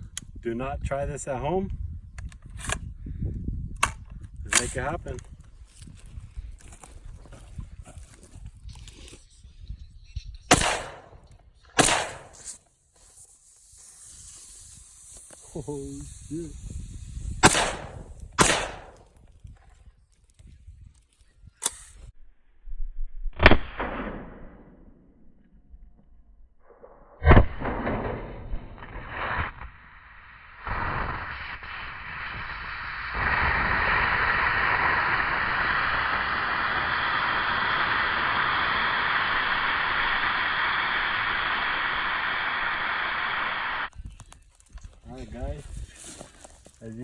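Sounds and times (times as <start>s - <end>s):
rifle shots echoing: 10.5s - 11.2s, 11.8s - 12.5s, 17.4s - 19.1s
steady rushing hiss: 10.5s - 11.2s, 11.8s - 19.2s, 29.0s - 43.9s.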